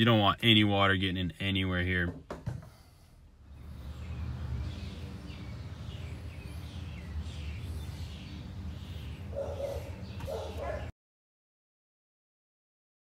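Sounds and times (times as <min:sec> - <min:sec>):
small birds chirping: 0:03.4 - 0:10.9.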